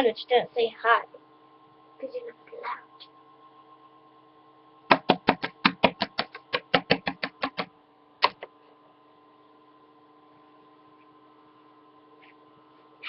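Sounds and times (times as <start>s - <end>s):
plastic toy tapping on hard surface: 4.9s - 8.4s.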